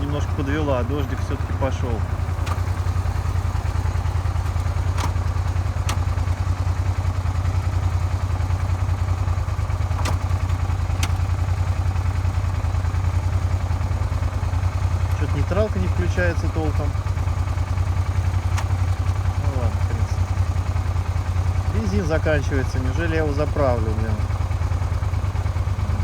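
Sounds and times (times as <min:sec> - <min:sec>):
motorcycle engine running: 0:00.0 - 0:26.0
sharp clicks: 0:18.4 - 0:19.0.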